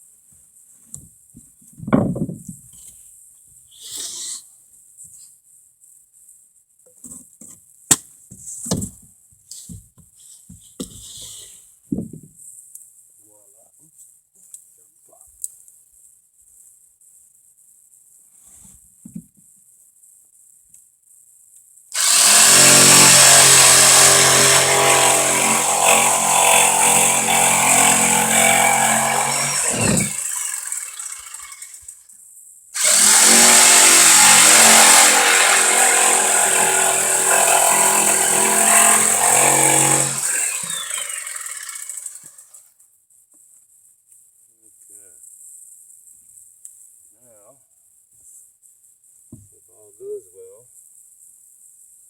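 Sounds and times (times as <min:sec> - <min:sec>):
power tool motor running: 0:22.0 - 0:31.9, 0:32.8 - 0:42.4.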